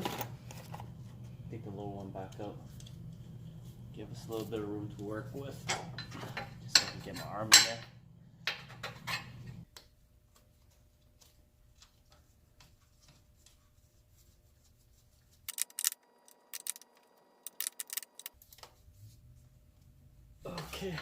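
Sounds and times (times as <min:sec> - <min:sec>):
ratchet wrench clicking: 0:15.5 - 0:16.0, 0:16.6 - 0:16.9, 0:17.5 - 0:18.4.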